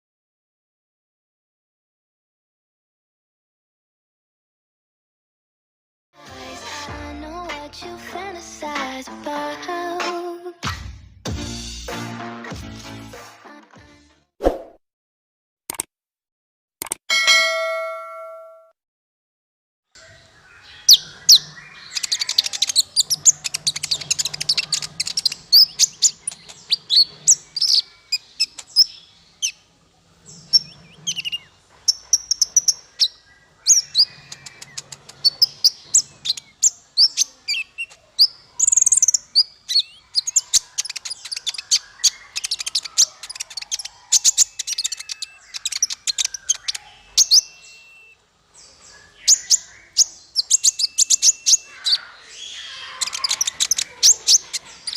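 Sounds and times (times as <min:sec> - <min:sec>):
small songbird singing: 0:20.0 - 0:54.9.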